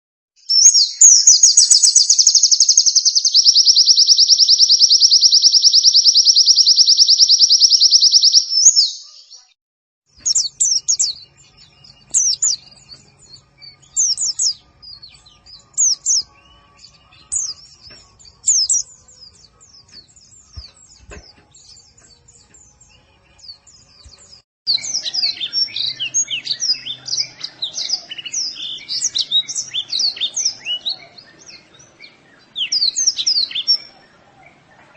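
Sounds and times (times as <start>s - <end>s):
bird trilling and chirping: 0.4s - 9.5s, 10.2s - 34.8s.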